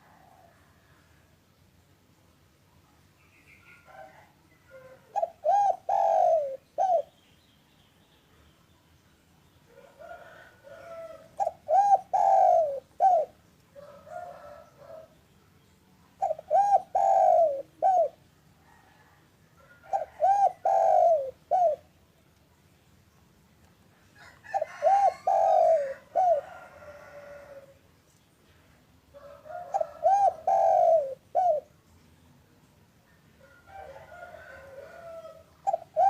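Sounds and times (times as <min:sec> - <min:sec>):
dove cooing: 0:03.7 - 0:07.2, 0:09.7 - 0:15.2, 0:16.2 - 0:22.0, 0:24.2 - 0:27.8, 0:29.2 - 0:31.8, 0:33.5 - 0:36.0.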